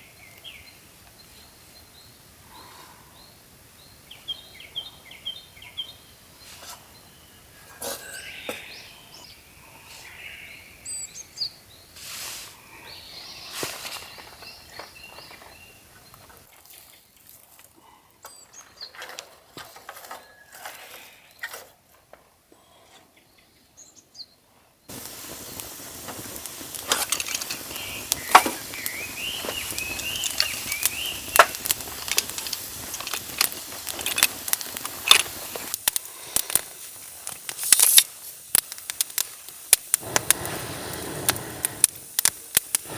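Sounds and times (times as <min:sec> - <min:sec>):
birds chirping: 0:00.0 - 0:12.0, 0:12.6 - 0:17.1, 0:18.1 - 0:21.6, 0:22.6 - 0:36.8
background noise: 0:00.0 - 0:42.9.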